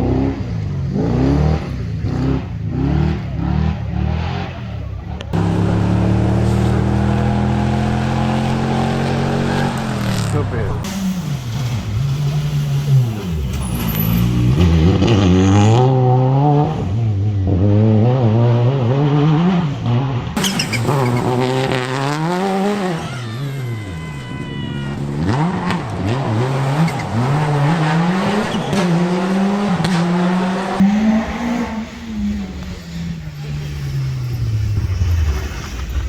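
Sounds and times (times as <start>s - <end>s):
rally car engine revving: 0.0s - 36.0s
high squeal: 10.8s - 15.1s, 20.4s - 25.4s, 30.8s - 36.0s.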